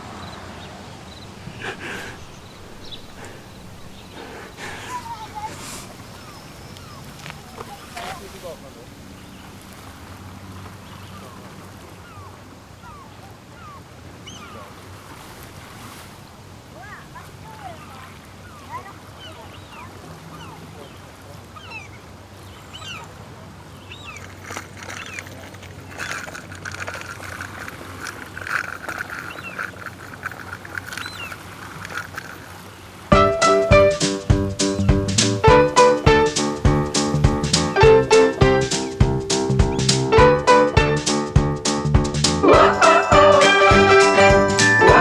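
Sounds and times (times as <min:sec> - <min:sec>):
birds chirping: 0:00.0 - 0:09.7, 0:10.7 - 0:14.7, 0:17.2 - 0:45.0
rough chattering bird calls: 0:00.2 - 0:08.1, 0:23.8 - 0:32.9.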